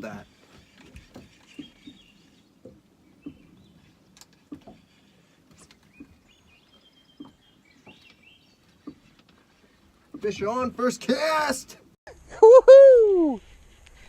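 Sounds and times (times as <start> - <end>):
faint bird chirps: 1.2 - 2.5, 3.1 - 9.8
soft knocks: 7.2 - 8.2.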